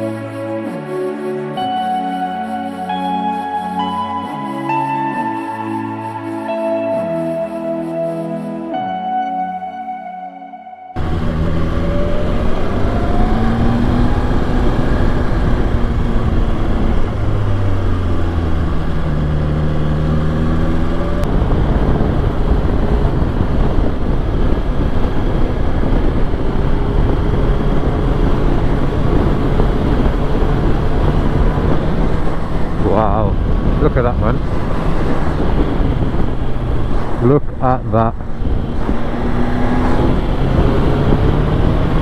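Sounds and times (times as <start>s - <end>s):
wind rushing: 10.9s - 42.0s
motorcycle engine running: 11.0s - 42.0s.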